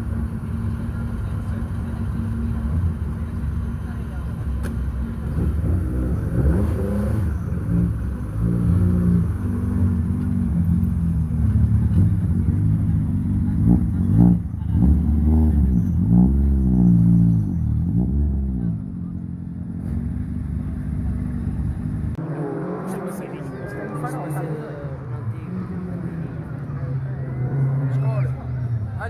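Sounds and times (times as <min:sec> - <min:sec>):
rally car engine revving hard: 0:05.2 - 0:10.2.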